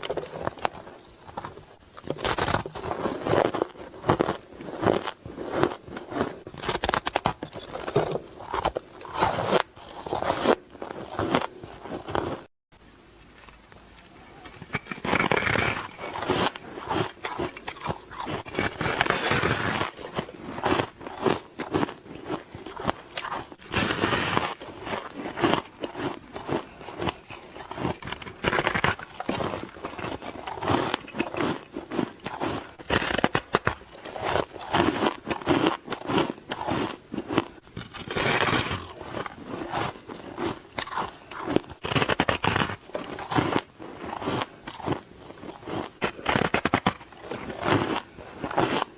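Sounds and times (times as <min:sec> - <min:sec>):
person chewing ice: 0:00.0 - 0:12.5, 0:13.2 - 0:48.9.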